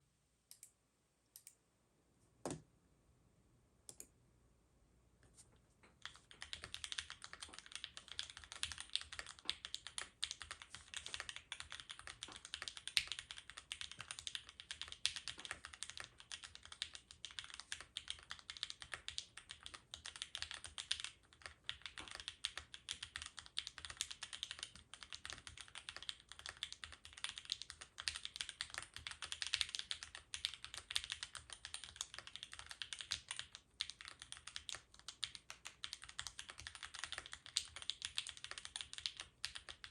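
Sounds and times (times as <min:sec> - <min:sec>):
fast typing on mechanical keyboard: 0:05.9 - 0:39.9.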